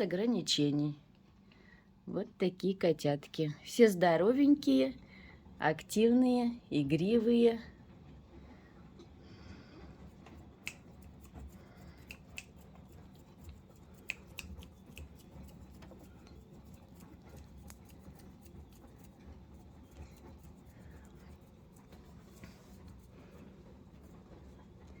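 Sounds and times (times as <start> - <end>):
low steady hum: 0.0 - 25.0
kittens moving about: 10.1 - 25.0.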